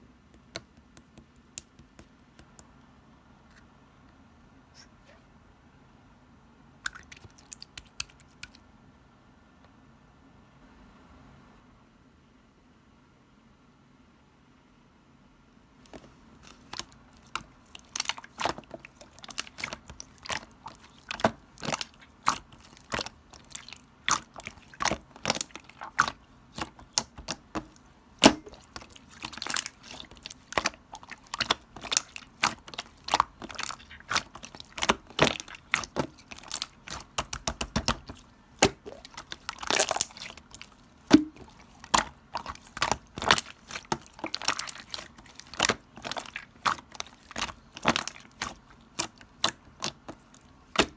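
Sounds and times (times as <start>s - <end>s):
slime squished by hand: 6.9s - 8.6s, 15.9s - 50.9s.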